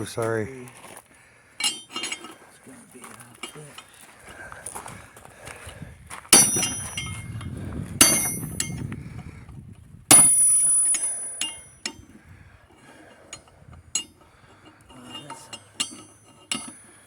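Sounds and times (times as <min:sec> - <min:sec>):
light metal clinks: 0:01.6 - 0:02.4, 0:06.3 - 0:07.4, 0:08.0 - 0:08.8, 0:10.1 - 0:12.2, 0:12.8 - 0:17.0
hammer striking metal: 0:06.4 - 0:07.2, 0:08.0 - 0:08.8, 0:10.1 - 0:12.0.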